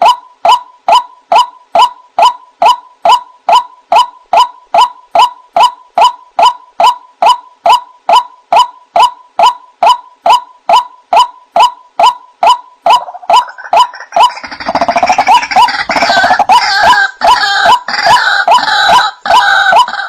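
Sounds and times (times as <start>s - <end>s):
harsh croaking calls: 1.0s - 20.0s
waterhen calling: 11.6s - 20.0s.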